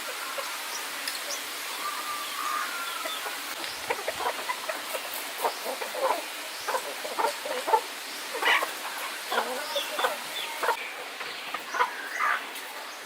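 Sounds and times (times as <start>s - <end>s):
steady hiss: 0.0s - 13.0s
chickens clucking: 2.9s - 13.0s.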